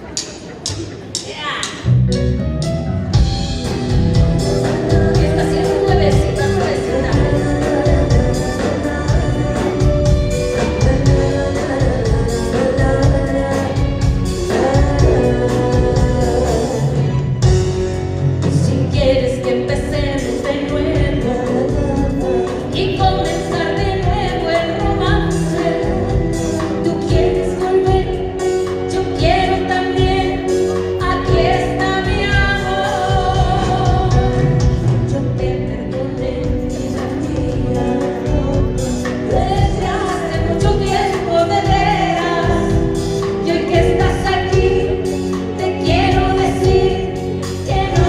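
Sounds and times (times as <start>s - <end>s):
bass: 0.0s - 48.0s
live band playing: 0.0s - 48.0s
drum beat: 3.2s - 16.6s
person singing: 3.6s - 17.8s, 18.4s - 48.0s.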